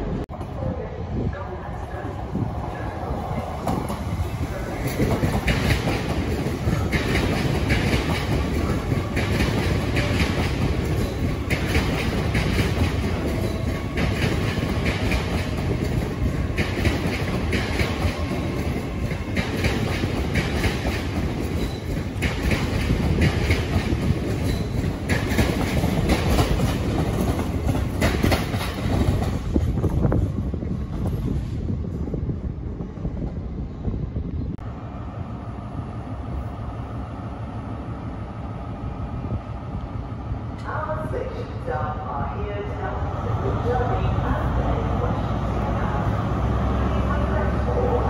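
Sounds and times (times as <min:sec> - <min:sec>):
train wheels rumbling on track: 0:00.0 - 0:48.0
rhythmic clickety-clack: 0:04.8 - 0:30.3.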